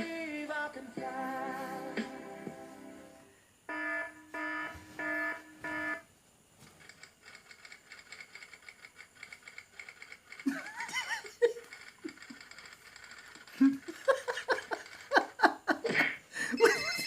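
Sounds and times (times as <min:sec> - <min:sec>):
faint rapid ticking: 0:06.8 - 0:10.7, 0:11.5 - 0:15.3.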